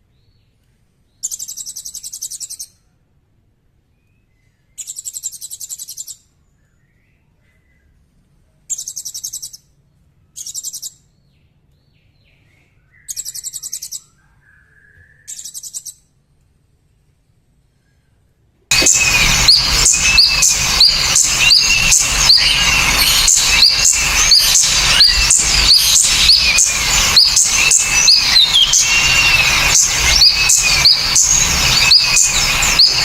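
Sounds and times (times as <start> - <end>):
soft slurred bird chirps: 0.0 - 2.9, 4.0 - 16.1, 18.7 - 33.0
songbird trilling: 1.2 - 2.7, 13.0 - 14.1, 15.2 - 16.0, 18.7 - 33.0.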